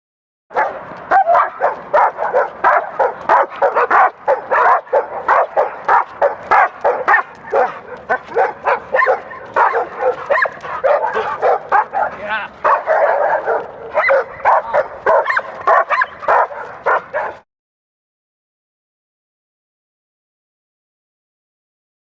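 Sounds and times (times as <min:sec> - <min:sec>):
dog barking rapidly: 0:00.5 - 0:17.4.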